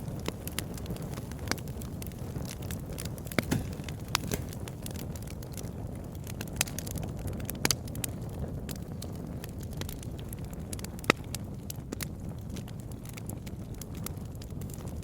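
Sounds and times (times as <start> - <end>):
rush of flames: 0.0 - 7.4
burning wood crackling and popping: 0.0 - 15.0.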